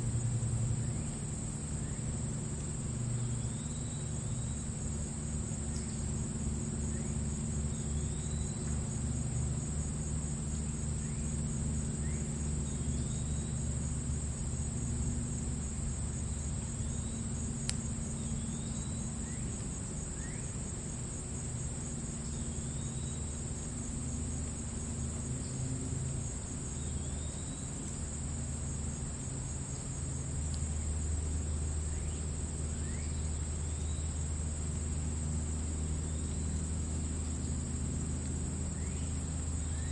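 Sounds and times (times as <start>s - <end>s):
crickets trilling: 0.0s - 39.9s
low steady rumble: 0.0s - 39.9s
bird chirping: 3.2s - 4.6s, 7.7s - 8.7s.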